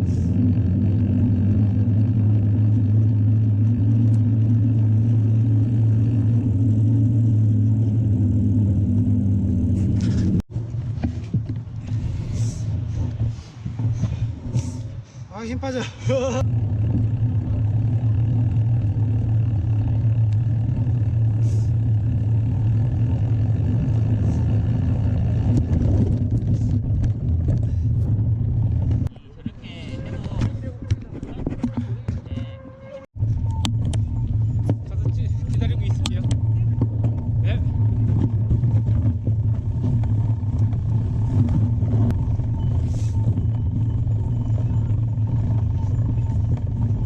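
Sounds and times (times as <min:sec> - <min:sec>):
tyre and wind noise: 0:00.0 - 0:17.8, 0:18.6 - 0:47.0
bike clicks and rattles: 0:16.1 - 0:32.4, 0:33.2 - 0:47.0.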